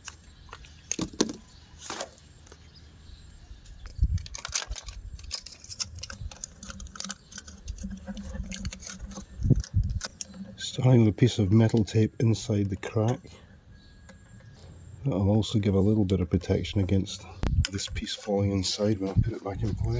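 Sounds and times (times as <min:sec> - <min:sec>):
small parts and tools rattling: 0:03.9 - 0:13.2.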